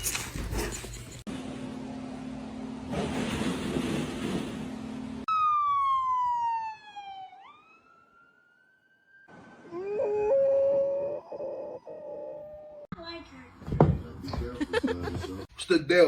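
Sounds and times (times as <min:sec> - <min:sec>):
dog howling: 0:09.6 - 0:12.9.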